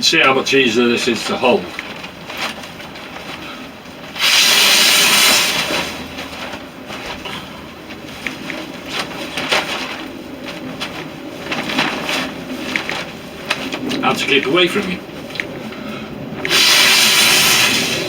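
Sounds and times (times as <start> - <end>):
tinder crackling: 0.0 - 18.0
breath blown into tinder: 4.2 - 5.9, 16.5 - 18.0.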